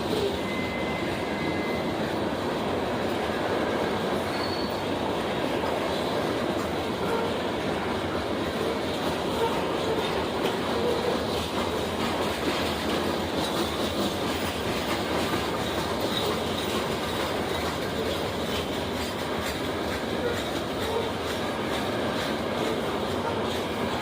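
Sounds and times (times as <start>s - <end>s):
train wheels rumbling on rails: 0.0s - 24.0s
faint rail clicks: 8.5s - 24.0s.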